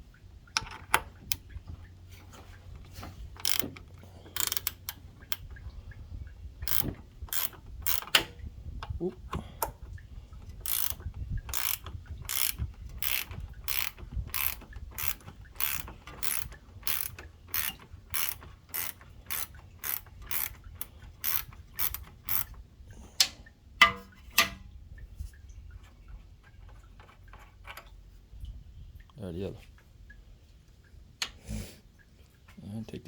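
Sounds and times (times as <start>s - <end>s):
ratchet wrench clicking: 3.4s - 3.8s, 4.4s - 5.4s, 6.6s - 8.3s, 10.6s - 22.5s
sharp metal clicks: 3.4s - 5.6s, 6.6s - 9.8s, 10.4s - 22.6s, 23.2s - 24.7s.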